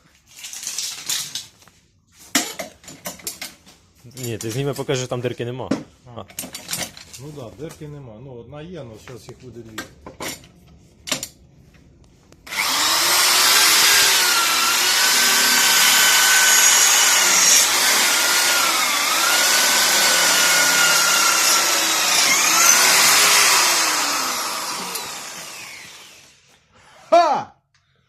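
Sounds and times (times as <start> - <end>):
electric drill boring metal: 12.5 - 26.5.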